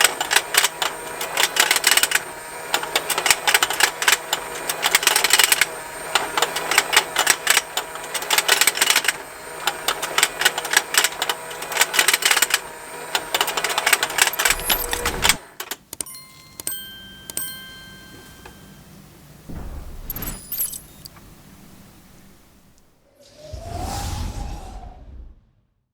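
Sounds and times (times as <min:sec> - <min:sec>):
rapid plastic clicking: 0:00.0 - 0:16.7
toy motor humming: 0:13.4 - 0:15.3.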